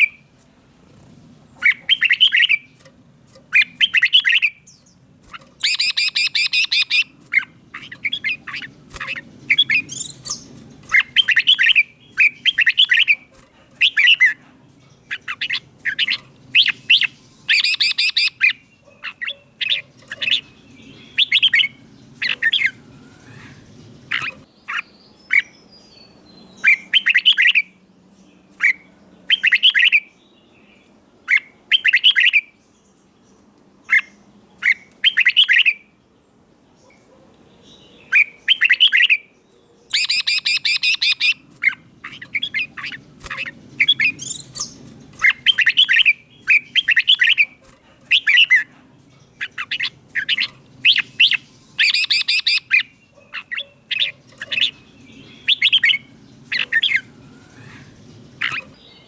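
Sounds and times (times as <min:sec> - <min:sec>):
bird singing whistled phrases: 0:01.6 - 0:02.6, 0:05.6 - 0:07.1, 0:08.0 - 0:13.2, 0:15.1 - 0:18.6, 0:38.1 - 0:39.2, 0:39.9 - 0:41.4, 0:49.4 - 0:52.9, 0:55.3 - 0:58.6.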